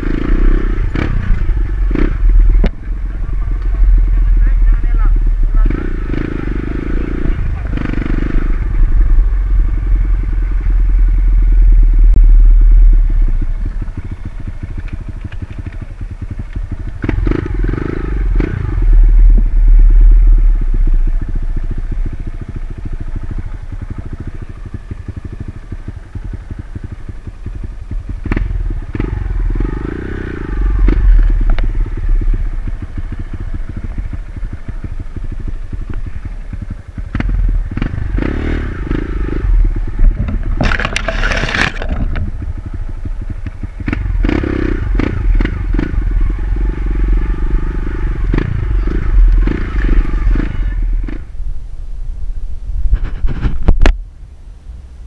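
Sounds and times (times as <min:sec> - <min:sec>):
dirt bike engine revving: 0:00.0 - 0:51.4
bike knocking and clattering: 0:40.0 - 0:42.8.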